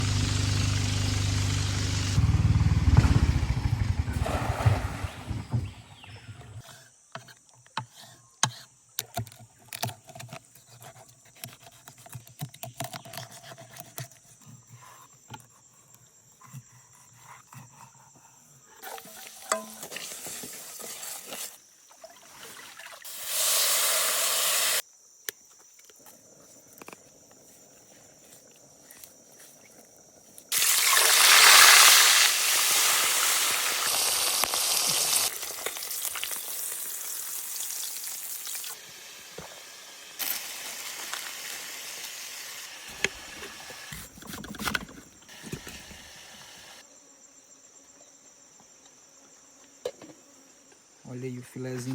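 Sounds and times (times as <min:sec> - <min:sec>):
fish sizzling in hot oil: 0:23.0 - 0:24.8, 0:30.5 - 0:43.9.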